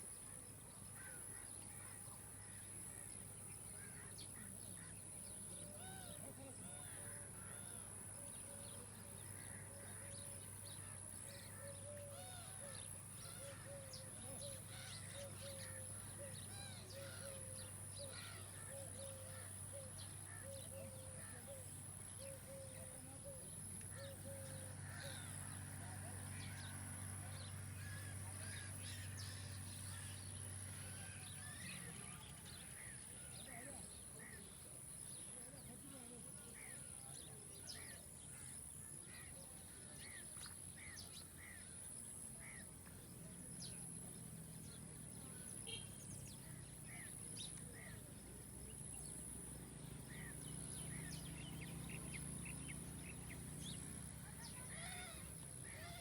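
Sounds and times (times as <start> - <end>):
small birds chirping: 39.2 - 56.0.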